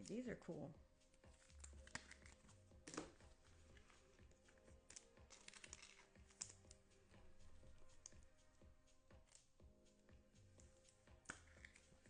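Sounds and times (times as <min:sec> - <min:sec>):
trading cards being flipped: 0:01.2 - 0:06.8, 0:10.7 - 0:12.0.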